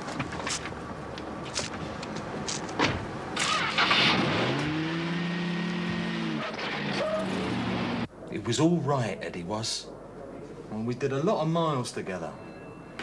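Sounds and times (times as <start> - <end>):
car engine starting and revving: 3.4 - 8.1.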